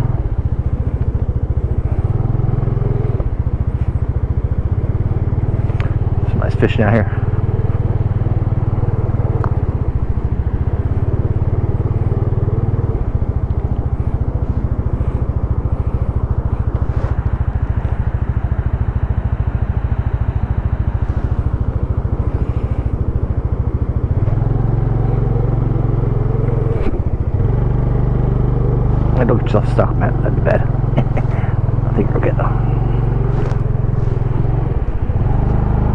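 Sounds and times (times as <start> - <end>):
motorbike engine running: 0.0 - 35.9.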